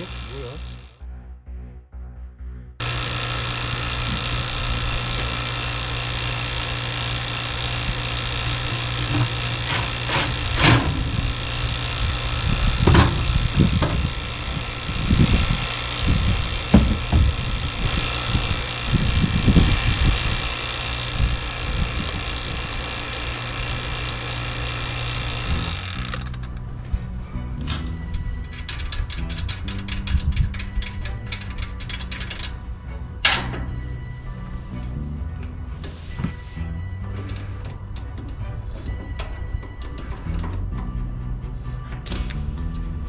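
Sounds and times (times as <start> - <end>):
motor humming: 0.0 - 1.0, 2.8 - 43.0
knocks and clunks: 2.8 - 20.2, 27.6 - 34.1.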